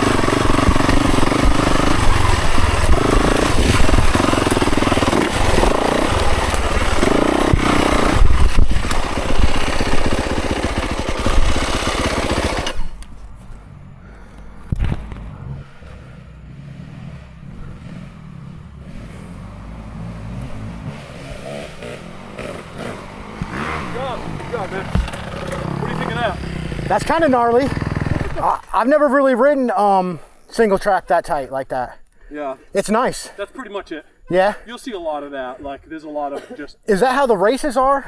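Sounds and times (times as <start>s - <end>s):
wind noise: 0.0s - 11.9s, 12.6s - 15.8s
dirt bike engine: 0.0s - 30.6s.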